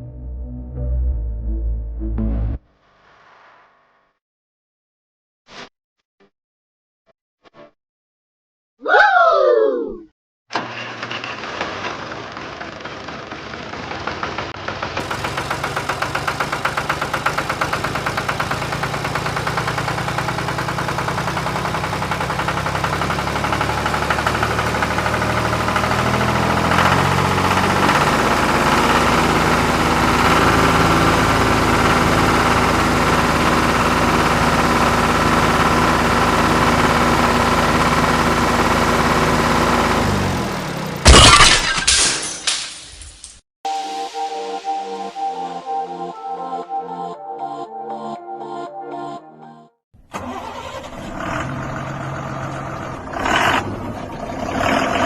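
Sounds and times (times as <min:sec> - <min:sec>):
tractor engine running: 0:10.5 - 0:41.1, 0:50.1 - 0:55.0.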